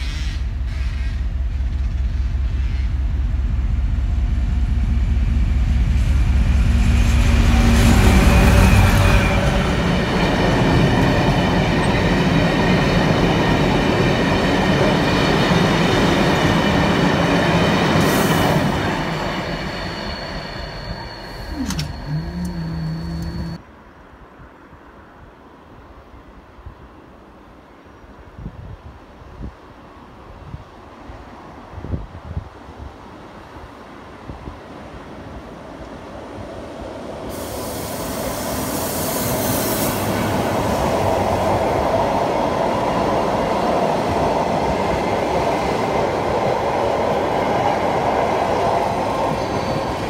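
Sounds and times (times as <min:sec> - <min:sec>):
train wheels rumbling and clattering: 0:00.0 - 0:23.6
locomotive throbbing: 0:00.2 - 0:17.9, 0:18.6 - 0:23.6
high ringing: 0:19.2 - 0:23.6.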